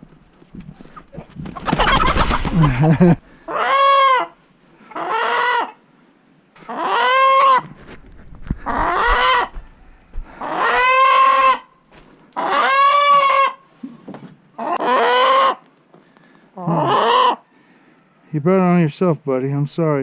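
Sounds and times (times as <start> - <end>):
chicken squawking loudly: 0.9 - 2.7, 3.5 - 5.8, 6.6 - 7.7, 8.6 - 9.6, 10.4 - 11.7, 12.4 - 13.6, 14.6 - 15.6, 16.6 - 17.4.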